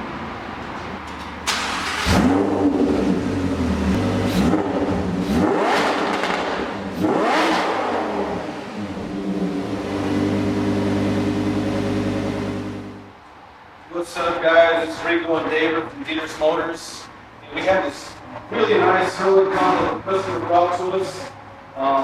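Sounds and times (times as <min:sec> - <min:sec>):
car engine revving and idling: 0:01.4 - 0:13.1.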